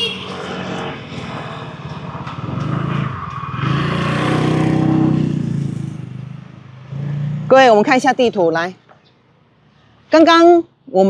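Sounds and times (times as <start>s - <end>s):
vehicle engine passing by: 0.0s - 8.4s.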